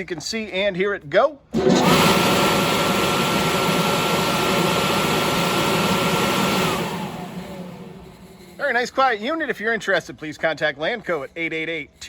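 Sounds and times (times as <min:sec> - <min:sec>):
exhaust blower fan whining: 0:01.6 - 0:08.8.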